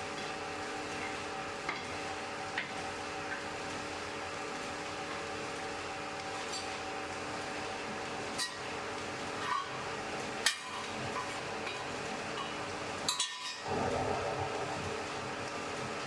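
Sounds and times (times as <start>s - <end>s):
forge fire humming and rushing: 13.6s - 16.0s.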